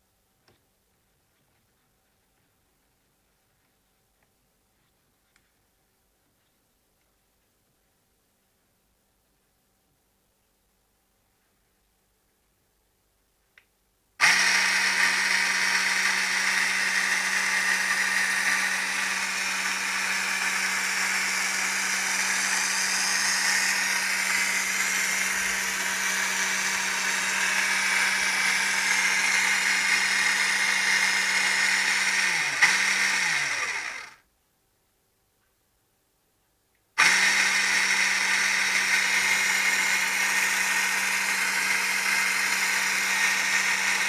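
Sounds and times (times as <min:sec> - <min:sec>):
small electric motor humming: 0:14.2 - 0:34.2, 0:37.0 - 0:44.0.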